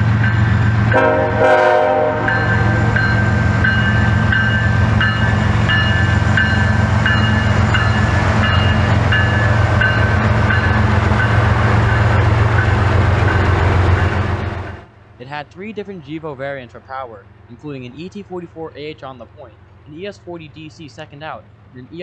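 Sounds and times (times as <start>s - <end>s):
diesel locomotives rumbling: 0.0s - 22.0s
bell dinging: 2.3s - 11.4s.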